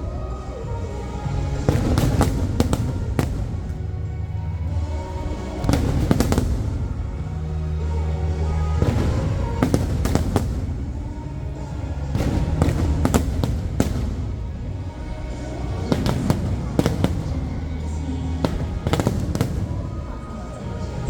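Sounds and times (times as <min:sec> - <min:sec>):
fireworks bangs and crackles: 0:00.0 - 0:21.0
music from loudspeakers: 0:00.0 - 0:21.0.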